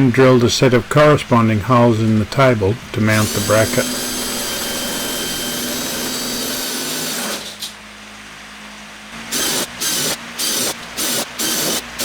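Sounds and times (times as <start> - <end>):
electric drill boring: 3.1 - 7.8, 9.2 - 12.0.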